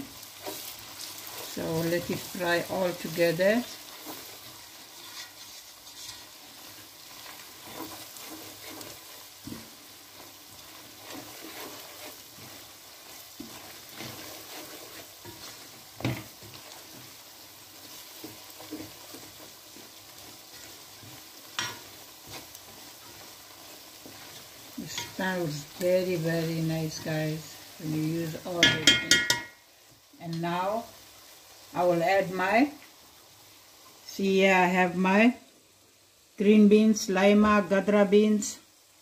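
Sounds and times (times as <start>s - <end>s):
wooden spoon scraping a pot: 0.0s - 29.5s
food sizzling in a pot: 0.0s - 39.0s.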